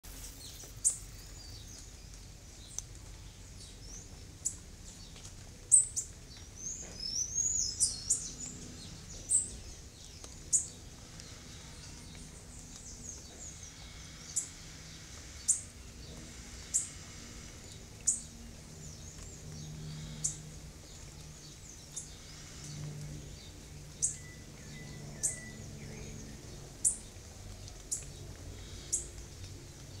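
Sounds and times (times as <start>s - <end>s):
small birds chirping: 0.1s - 30.0s
bird warbling song: 5.7s - 29.2s.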